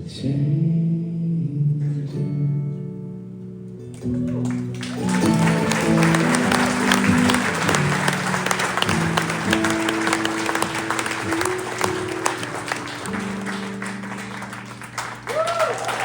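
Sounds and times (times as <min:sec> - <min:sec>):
audience applauding: 0:04.0 - 0:16.0
song closing chords: 0:05.5 - 0:15.2.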